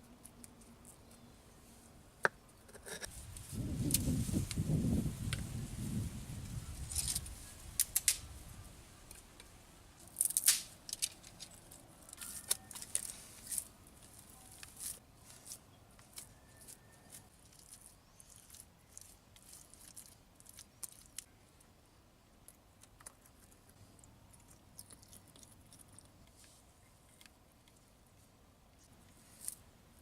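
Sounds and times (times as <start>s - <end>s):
sharp snaps: 7.7s - 8.4s, 10.2s - 11.2s.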